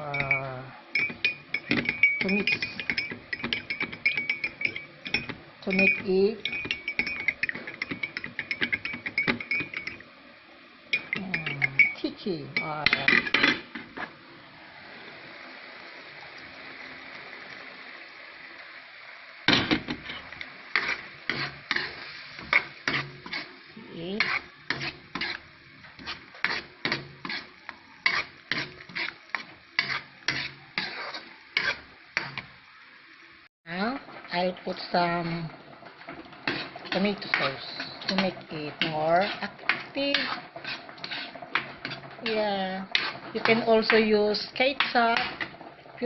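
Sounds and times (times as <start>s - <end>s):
utensil scraping a pan: 1.0s - 10.0s, 19.9s - 32.5s, 35.0s - 46.0s
pan hissing: 36.1s - 44.0s.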